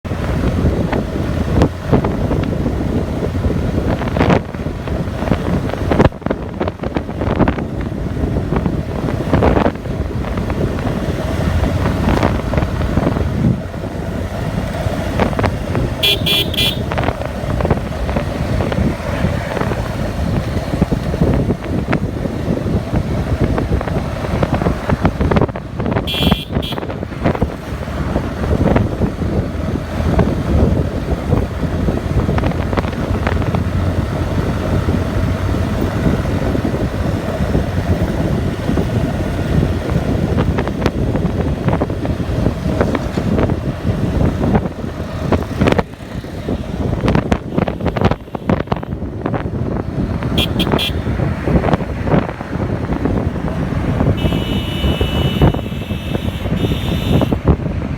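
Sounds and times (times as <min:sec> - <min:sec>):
motorcycle engine and road noise: 0:00.0 - 0:57.9
passing traffic: 0:00.0 - 0:57.9
wind buffeting microphone: 0:00.0 - 0:57.9
vehicle horn honking: 0:16.0 - 0:17.1, 0:26.0 - 0:27.0, 0:47.5 - 0:49.0, 0:50.4 - 0:51.1, 0:54.1 - 0:57.4.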